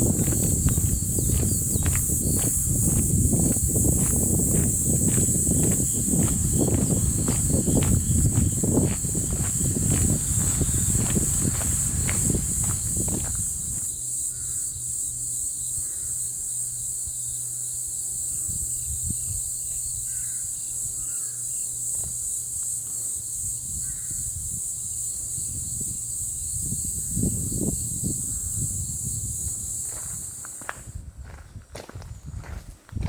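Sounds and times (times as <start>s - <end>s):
high-pitched insect chorus: 0.0s - 33.0s
faint bird calls: 19.8s - 21.6s.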